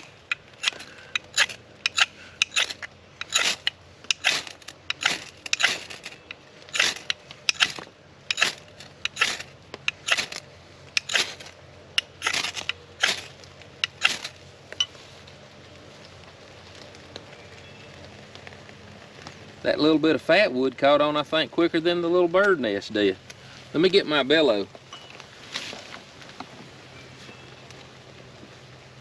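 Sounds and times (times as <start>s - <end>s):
hands working campfire tinder: 0.0s - 15.4s.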